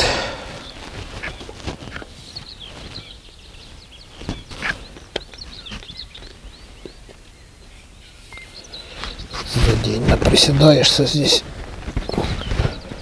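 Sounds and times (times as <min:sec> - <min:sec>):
small birds chirping: 0:00.0 - 0:13.0
close rustles: 0:00.5 - 0:03.2.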